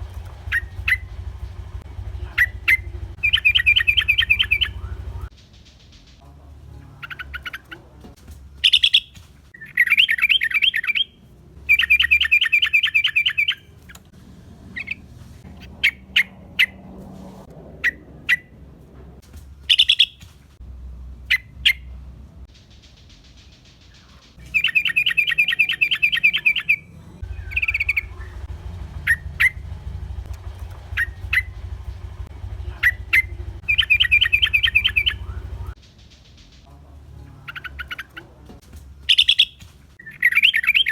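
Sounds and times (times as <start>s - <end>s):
birds chattering trills: 0.0s - 5.3s, 8.6s - 11.1s, 19.7s - 20.2s, 22.6s - 35.8s, 39.1s - 40.9s
sharp bird chirps: 0.4s - 1.5s, 2.3s - 5.3s, 8.6s - 14.0s, 19.7s - 20.2s, 22.6s - 29.6s, 32.7s - 35.8s, 39.1s - 40.9s.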